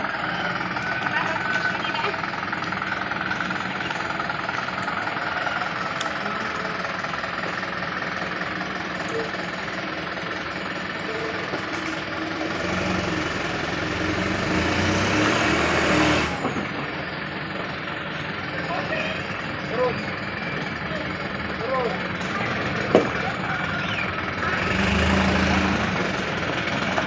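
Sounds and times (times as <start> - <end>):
diesel truck engine running: 0.0 - 27.0.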